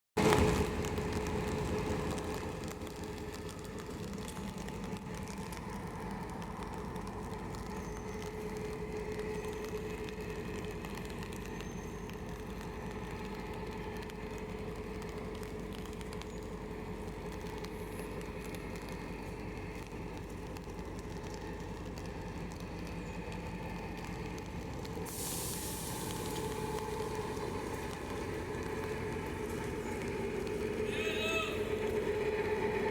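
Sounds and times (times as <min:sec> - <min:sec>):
locomotive engine drone: 0:00.2 - 0:32.9
compressed air hiss: 0:25.1 - 0:26.3.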